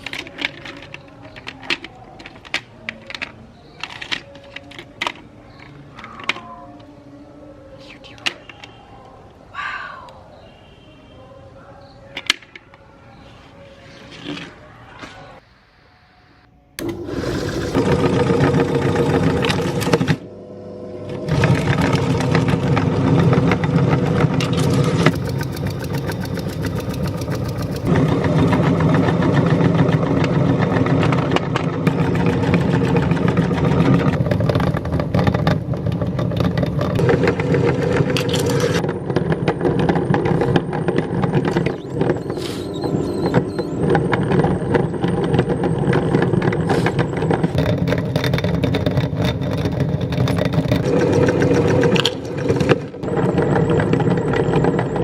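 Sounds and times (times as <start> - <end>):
meat grinder motor running: 16.8 - 55.0.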